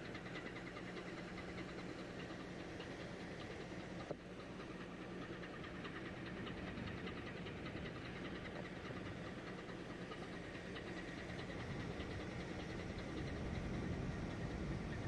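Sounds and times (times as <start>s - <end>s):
boat engine droning: 0.0s - 15.0s
wind: 0.0s - 15.0s.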